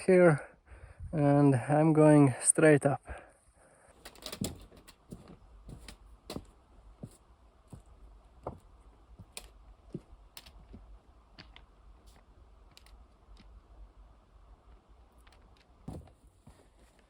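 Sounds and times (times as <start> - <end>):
footsteps on snow and rock: 4.5 - 13.7, 14.7 - 17.0.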